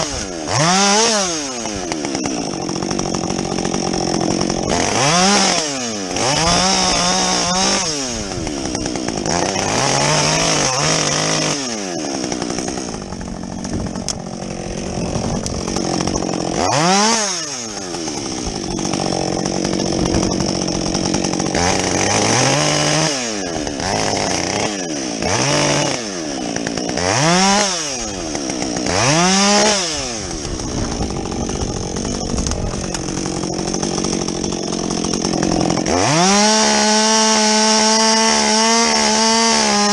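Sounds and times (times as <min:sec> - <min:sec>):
chainsaw engine revving: 0:00.0 - 0:39.9.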